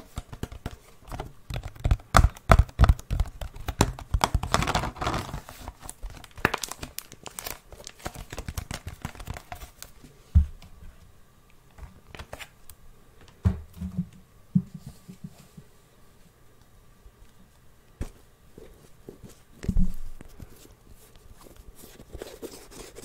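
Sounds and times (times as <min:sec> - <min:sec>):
crinkling and rustling: 0:00.0 - 0:11.0.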